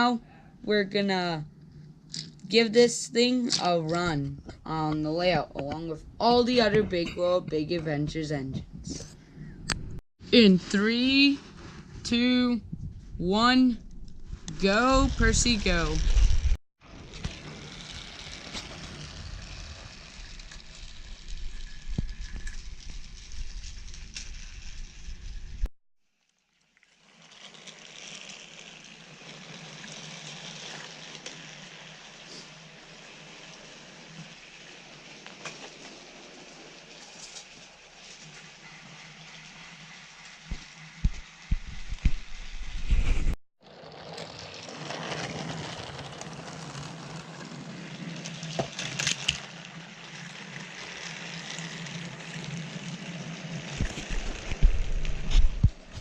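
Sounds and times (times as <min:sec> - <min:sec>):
toy train motors whirring: 0:14.3 - 0:25.7, 0:26.8 - 0:43.0, 0:43.6 - 0:56.0
wheels clicking over track joints: 0:14.5 - 0:25.6, 0:27.1 - 0:42.5, 0:43.7 - 0:56.0.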